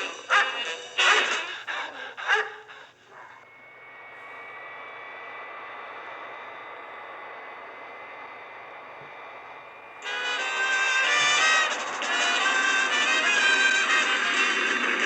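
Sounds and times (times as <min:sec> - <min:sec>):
cartoon airplane engine droning: 0:00.0 - 0:15.0.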